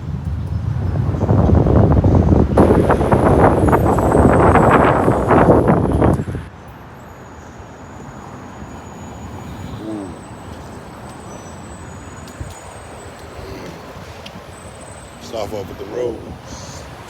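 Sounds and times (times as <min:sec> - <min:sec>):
wind buffeting microphone: 0:00.0 - 0:06.9
faint traffic noise: 0:00.0 - 0:17.0.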